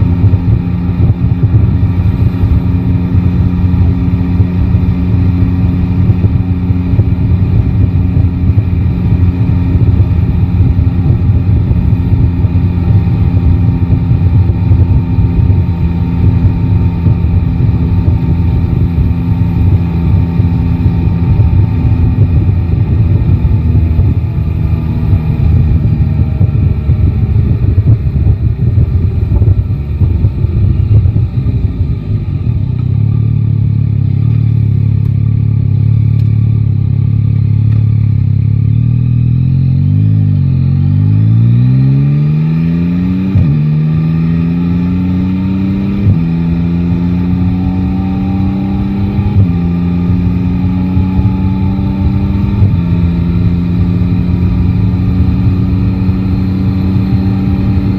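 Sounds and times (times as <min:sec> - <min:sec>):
motorcycle engine accelerating: 0:00.0 - 0:57.9.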